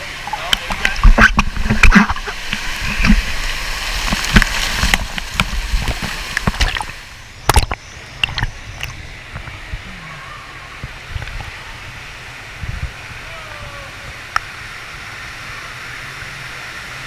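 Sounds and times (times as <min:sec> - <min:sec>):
water sloshing and splashing: 0:00.0 - 0:13.1.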